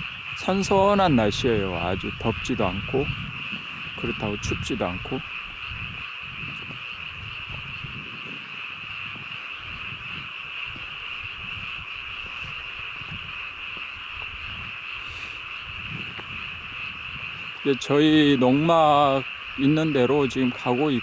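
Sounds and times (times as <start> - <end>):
frogs calling in chorus: 0.0 - 21.0
soft footsteps: 9.0 - 17.7.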